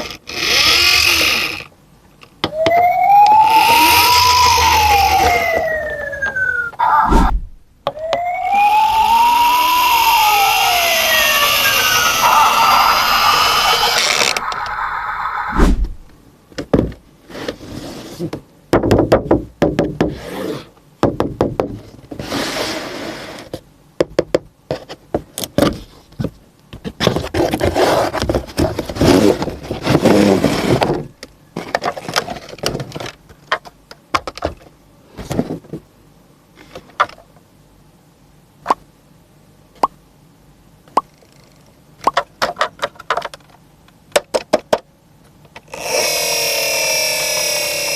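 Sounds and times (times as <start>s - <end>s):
scraping or rustling: 26.9s - 33.0s.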